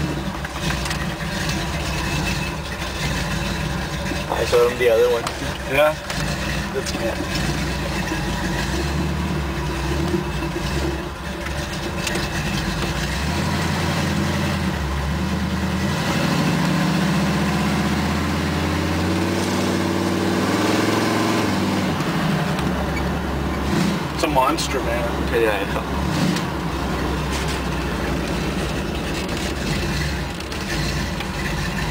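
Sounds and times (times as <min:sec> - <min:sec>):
pickup truck engine revving: 0:00.0 - 0:31.9.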